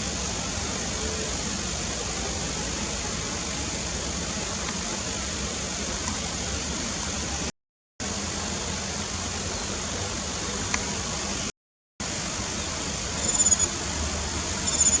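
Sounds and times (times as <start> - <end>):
background hiss and rumble: 0.0 - 15.0.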